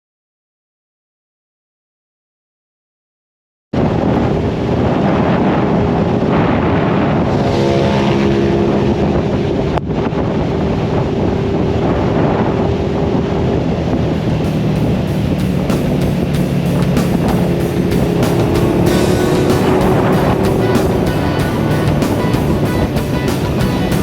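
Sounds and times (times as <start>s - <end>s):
wind rushing over microphone: 3.8s - 24.0s
motorcycle engine running: 13.8s - 24.0s.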